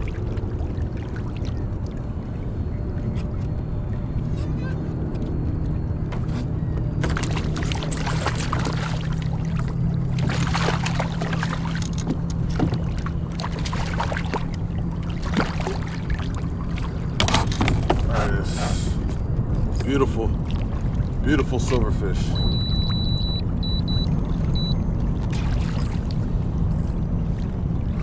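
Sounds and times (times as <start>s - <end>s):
steady low hum: 0.0s - 28.0s
knocks and rattles against kayak: 5.0s - 23.1s
water splashing: 6.1s - 19.1s, 19.7s - 28.0s.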